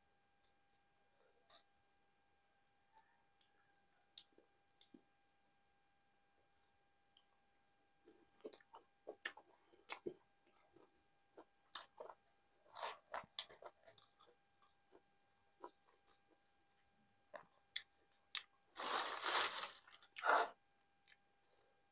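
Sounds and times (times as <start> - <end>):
person chewing: 8.2 - 16.5, 17.3 - 20.4.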